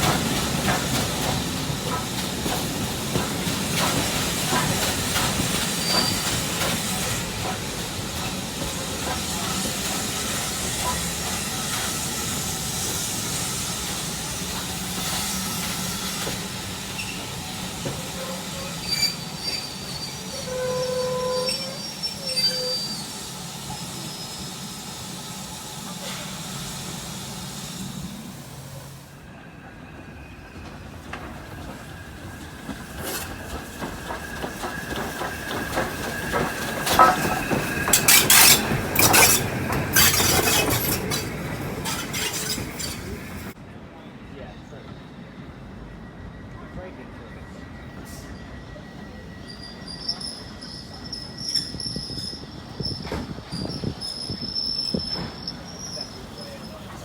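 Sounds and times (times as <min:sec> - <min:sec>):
train running on rails: 0:00.0 - 0:57.0
wheel squeals: 0:03.1 - 0:12.7, 0:13.8 - 0:24.6, 0:30.3 - 0:43.6, 0:47.5 - 0:57.0
clanks and knocks: 0:33.6 - 0:42.8.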